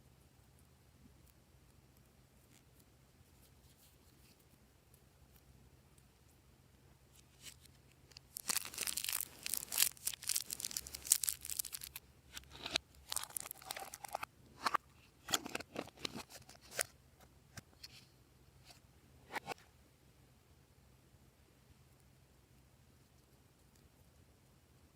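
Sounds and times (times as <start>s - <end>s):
slime crackling and popping: 8.2s - 12.0s, 12.6s - 14.2s.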